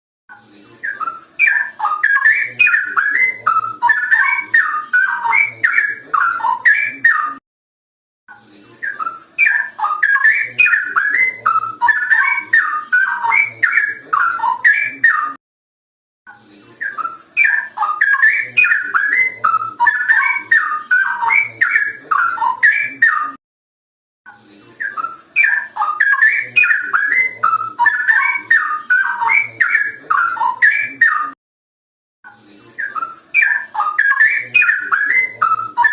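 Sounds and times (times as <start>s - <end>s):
bird singing liquid whistled notes: 0.8s - 7.4s, 8.8s - 15.4s, 16.8s - 23.4s, 24.8s - 31.4s, 32.8s - 35.9s.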